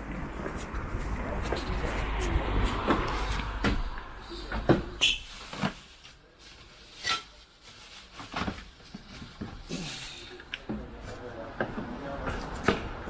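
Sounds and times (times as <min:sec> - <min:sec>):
furniture knocks and clunks: 0:02.9 - 0:05.0.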